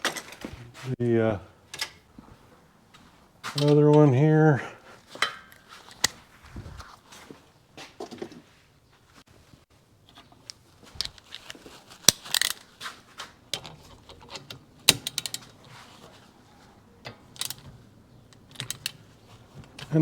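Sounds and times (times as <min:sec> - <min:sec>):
metal tools clinking: 0:01.7 - 0:02.1, 0:03.4 - 0:04.2, 0:05.1 - 0:06.2, 0:10.1 - 0:20.0.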